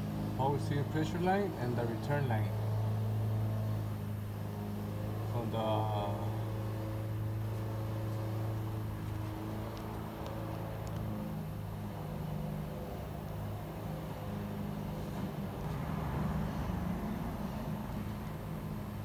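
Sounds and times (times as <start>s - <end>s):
low mechanical hum: 0.0s - 19.0s
light sharp clicks: 8.1s - 11.2s.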